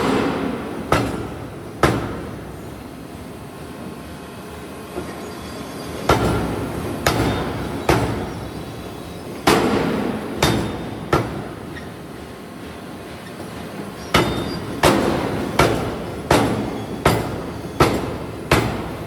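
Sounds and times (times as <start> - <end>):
workshop background noise: 0.0 - 19.0
forging hammer blows on steel: 14.1 - 19.0.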